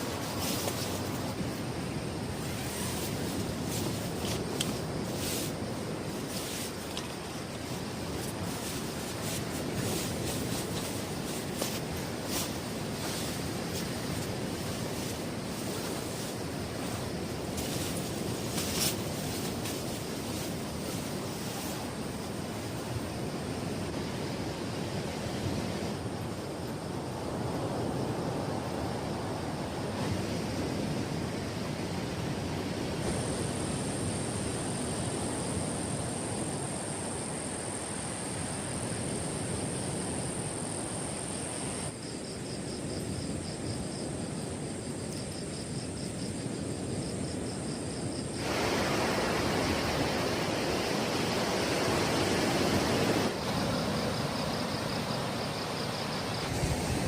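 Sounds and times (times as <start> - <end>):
surf rushing: 0.0 - 26.5, 48.3 - 57.0
high trill of night insects: 0.0 - 57.0
wind: 0.0 - 57.0.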